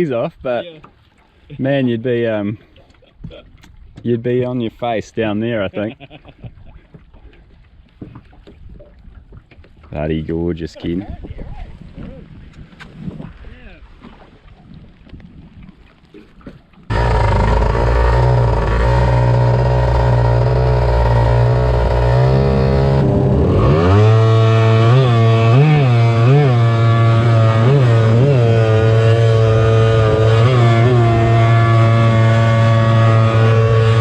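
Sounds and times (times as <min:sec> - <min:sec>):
jet boat engine revving: 0:16.9 - 0:34.0.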